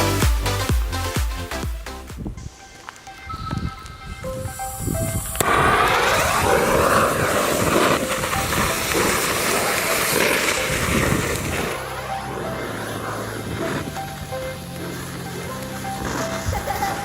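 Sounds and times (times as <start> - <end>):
firework fountain hissing: 4.5 - 17.0.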